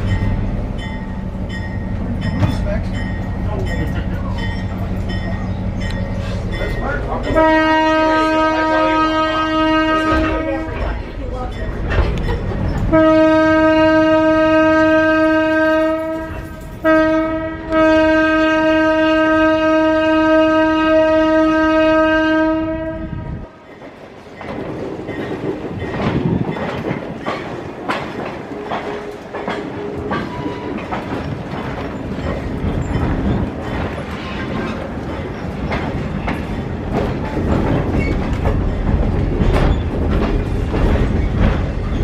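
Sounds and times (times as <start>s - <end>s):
wheels clacking over rail joints: 0.0s - 13.7s, 23.6s - 42.0s
locomotive horn blasts: 7.3s - 10.8s, 12.9s - 23.6s.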